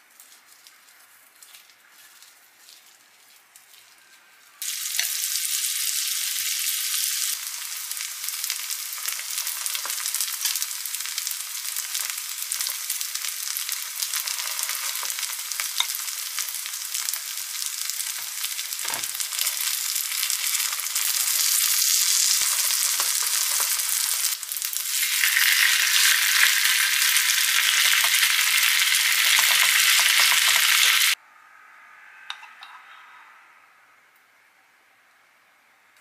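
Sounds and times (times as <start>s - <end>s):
pancakes sizzling in a pan: 4.6s - 31.2s.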